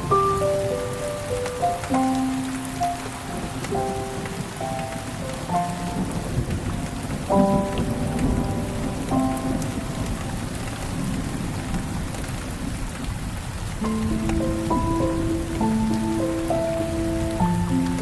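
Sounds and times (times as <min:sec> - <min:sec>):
steady rain: 0:00.0 - 0:18.0
thunder rumble: 0:00.0 - 0:18.0.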